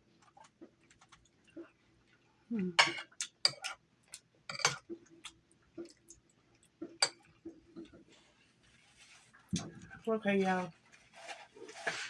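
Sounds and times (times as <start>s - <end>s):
cutlery and dishes clinking: 4.5s - 4.9s.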